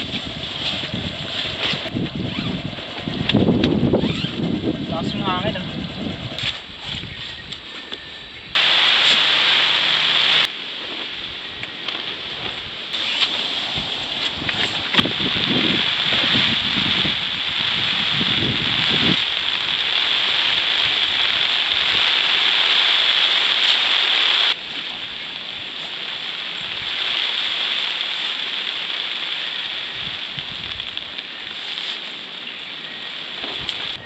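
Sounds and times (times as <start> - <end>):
heavy rain pouring: 0.0 - 4.9, 8.6 - 34.0
wind buffeting microphone: 0.0 - 8.6, 12.2 - 22.1.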